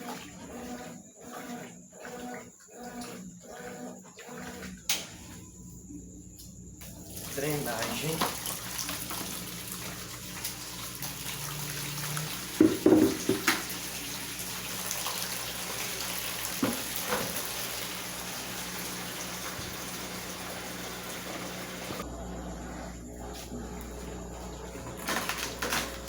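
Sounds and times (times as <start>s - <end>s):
washing machine water draining: 0.0s - 5.2s, 6.8s - 26.0s
loud knocks: 12.6s - 13.5s.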